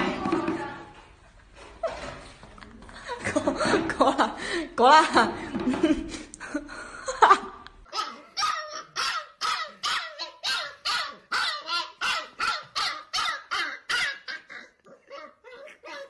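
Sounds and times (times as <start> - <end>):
puppy yelping barks: 7.9 - 16.0.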